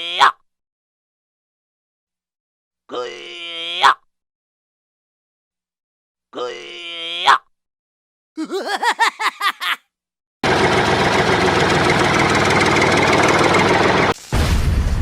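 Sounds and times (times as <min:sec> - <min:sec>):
engine chugging: 0:10.4 - 0:14.2.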